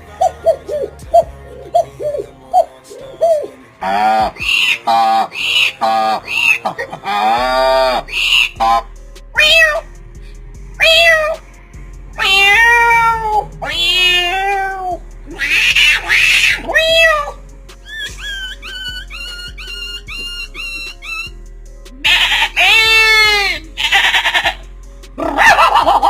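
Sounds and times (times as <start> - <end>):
meow-like cries: 9.4 - 9.8, 10.8 - 11.4, 12.2 - 17.4, 22.1 - 24.6.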